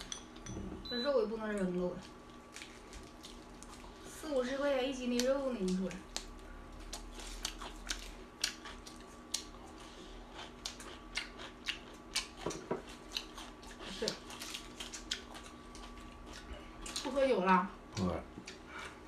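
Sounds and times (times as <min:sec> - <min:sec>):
faint steady hum: 0:00.0 - 0:19.0
crunchy chewing: 0:02.0 - 0:04.2, 0:05.1 - 0:17.2.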